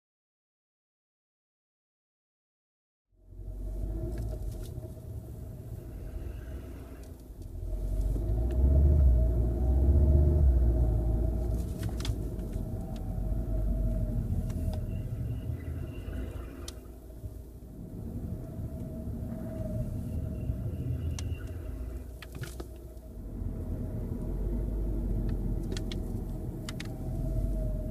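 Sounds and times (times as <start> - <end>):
brake groaning tone: 3.2 - 27.9
car road rumble: 3.2 - 27.9
rising brake tone: 5.0 - 25.6, 26.4 - 27.9.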